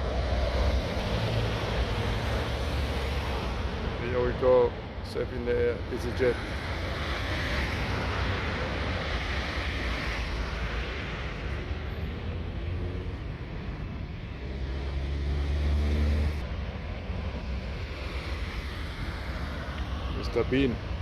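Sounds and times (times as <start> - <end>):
jet engines at takeoff power: 0.0 - 21.0.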